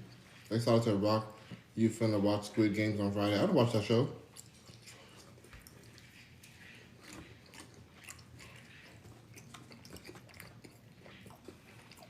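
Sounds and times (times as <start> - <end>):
chewing and biting food: 4.2 - 12.0.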